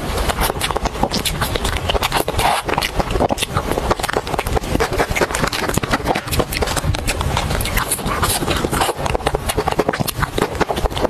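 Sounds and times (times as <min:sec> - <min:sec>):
wet chewing and lip smacking: 0:00.0 - 0:11.0.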